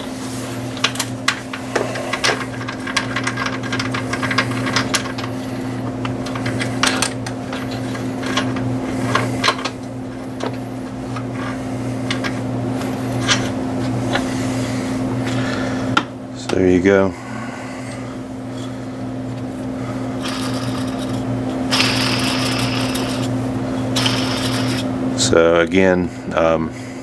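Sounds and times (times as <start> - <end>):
steady low hum: 0.0 - 27.0
ratchet and socket clicking: 21.7 - 23.3.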